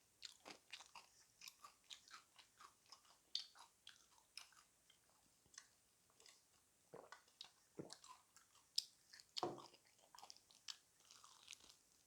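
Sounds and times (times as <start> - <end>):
crunchy chewing: 7.9 - 12.0.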